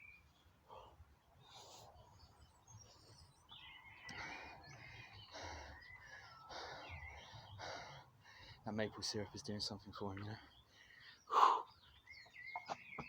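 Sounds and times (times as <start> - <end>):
birds chirping and whistling: 2.8 - 8.0, 10.5 - 13.0.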